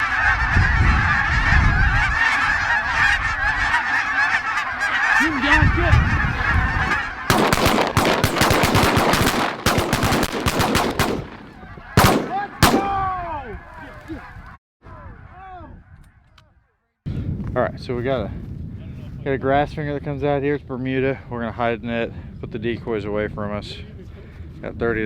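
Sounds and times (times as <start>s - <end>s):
geese honking: 0.0s - 16.3s
shotgun blasts: 7.3s - 13.1s.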